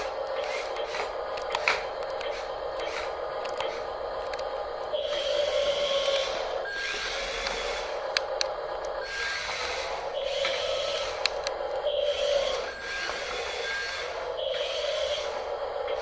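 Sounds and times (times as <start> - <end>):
toy electric motors whining: 0.0 - 16.0
click: 0.2 - 4.5, 7.4 - 9.0, 11.2 - 11.6
rasping scraping noise: 12.0 - 15.5.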